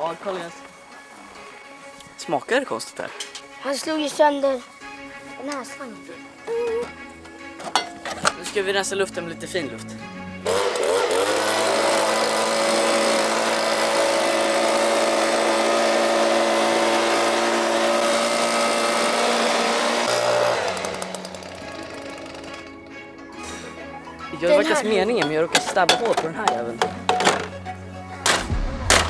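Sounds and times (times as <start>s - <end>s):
electric blower motor whining: 10.4s - 22.9s.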